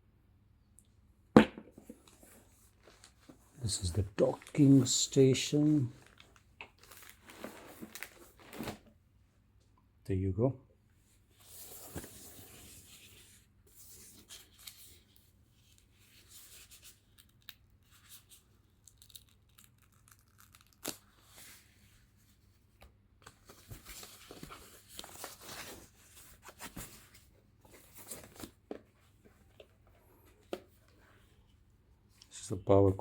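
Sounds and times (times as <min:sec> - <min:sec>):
packaging tearing and crinkling: 0:05.5 - 0:08.8, 0:18.8 - 0:21.2.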